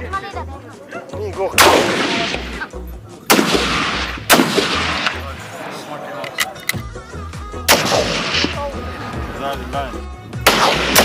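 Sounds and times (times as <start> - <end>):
rifle shots echoing: 1.6 - 2.7, 3.3 - 6.0, 7.7 - 8.8, 10.4 - 11.0.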